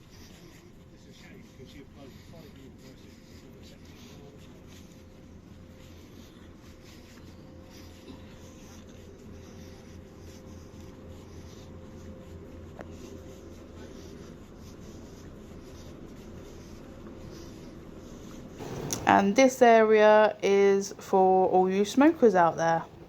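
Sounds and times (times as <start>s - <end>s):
faint constant tone: 0.0s - 23.0s
low background hum: 0.0s - 23.0s
light rustling: 18.6s - 19.5s.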